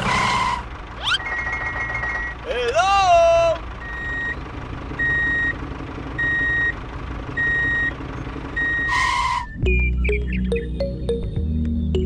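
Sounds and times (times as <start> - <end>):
low engine rumble: 0.0 - 12.0
vehicle reversing alarm beeps: 1.0 - 2.4, 3.8 - 4.4, 5.0 - 5.6, 6.2 - 6.8, 7.4 - 10.4.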